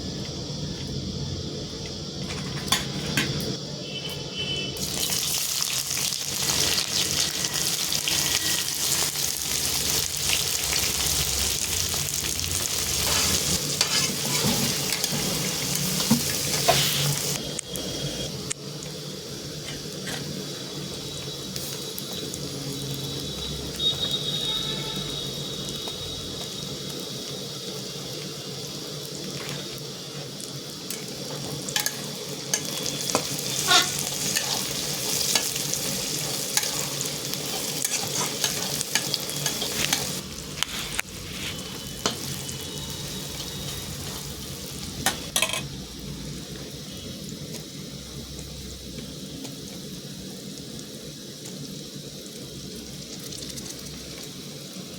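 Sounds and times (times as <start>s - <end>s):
food sizzling in oil: 0.4s - 54.9s
spoon scraping and knocking pan: 31.8s - 34.6s.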